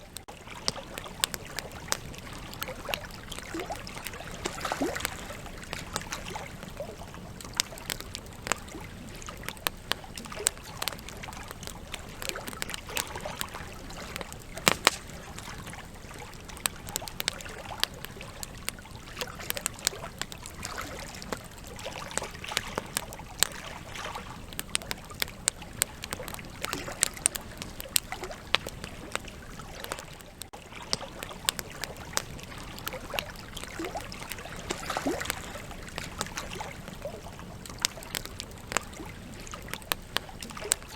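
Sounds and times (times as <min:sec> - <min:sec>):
logs crackling and popping: 0:00.0 - 0:40.9
hiss of flames: 0:05.4 - 0:15.9.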